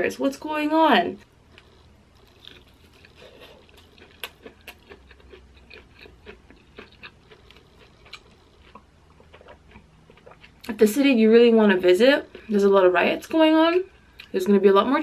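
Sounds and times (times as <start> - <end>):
wet chewing clicks and smacks: 1.5 - 10.8.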